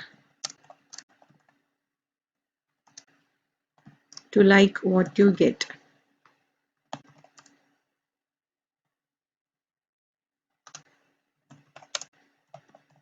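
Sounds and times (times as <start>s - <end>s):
computer keyboard keystrokes: 0.4s - 1.5s, 10.7s - 10.9s, 11.5s - 13.0s.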